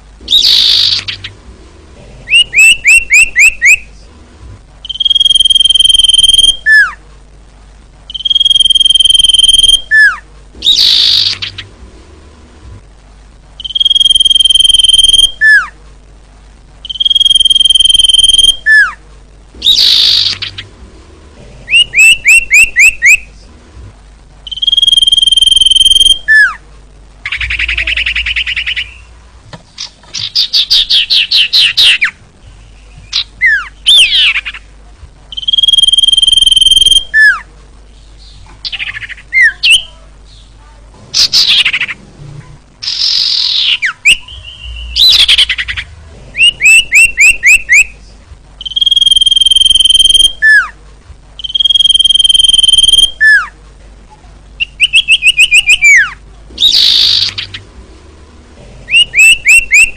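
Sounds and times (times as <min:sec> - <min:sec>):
buzzy bird chirps: 0:00.2 - 0:01.4, 0:02.3 - 0:04.0, 0:04.8 - 0:07.0, 0:08.1 - 0:11.8, 0:13.6 - 0:15.8, 0:16.8 - 0:19.0, 0:19.6 - 0:20.7, 0:21.7 - 0:23.4, 0:24.4 - 0:26.6, 0:27.2 - 0:42.0, 0:42.8 - 0:50.8, 0:51.4 - 0:53.6, 0:54.6 - 0:57.7, 0:58.9 - 0:59.9
bird rapid trilled notes: 0:13.6 - 0:15.6, 0:24.5 - 0:26.4, 0:48.6 - 0:50.6, 0:51.4 - 0:53.4, 0:58.9 - 0:59.9.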